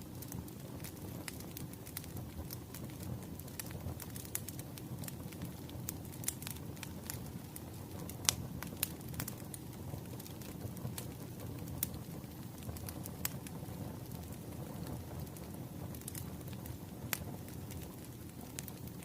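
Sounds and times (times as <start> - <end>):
fire popping and snapping: 0.0 - 19.0
wood fire crackling: 0.0 - 19.0.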